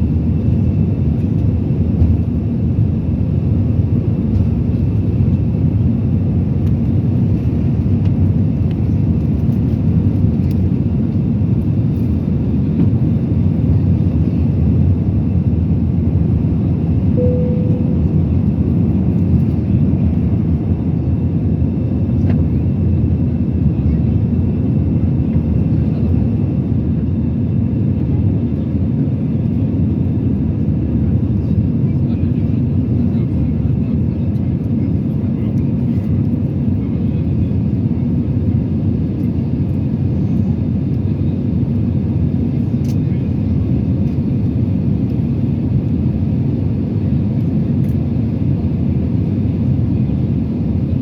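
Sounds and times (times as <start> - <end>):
jet engines rumbling in cabin: 0.0 - 51.0
short steady tone: 17.2 - 18.2.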